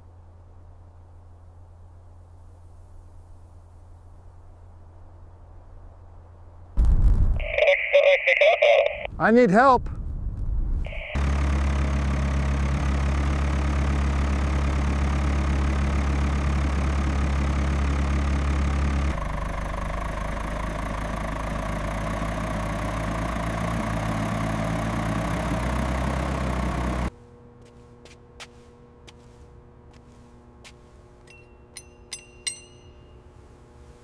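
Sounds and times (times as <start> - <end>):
engine idling: 10.9 - 27.1.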